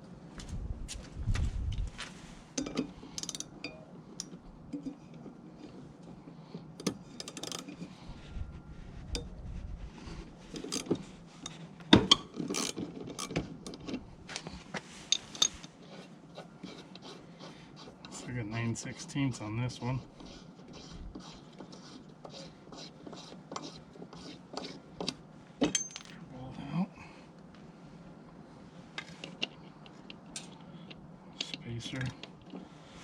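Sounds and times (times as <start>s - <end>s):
hand tools and metal parts clattering: 2.0s - 6.1s, 6.7s - 8.0s, 10.4s - 17.0s, 23.4s - 26.2s.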